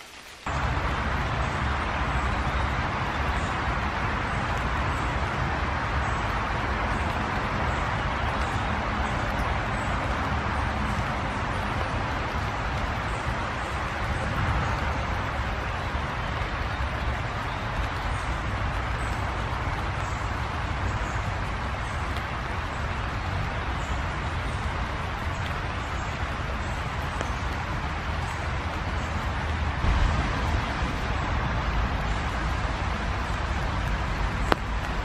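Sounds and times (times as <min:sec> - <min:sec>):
distant road traffic rumble: 0:00.0 - 0:35.0.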